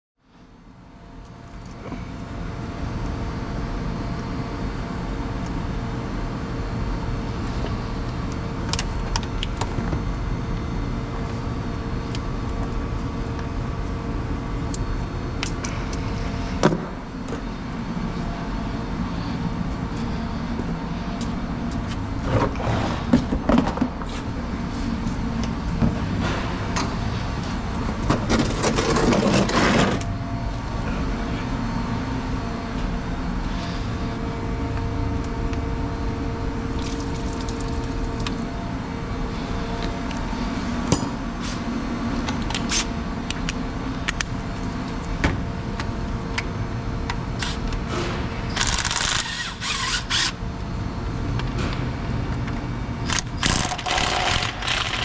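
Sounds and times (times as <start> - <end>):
noisy rattling burst: 53.4 - 55.0.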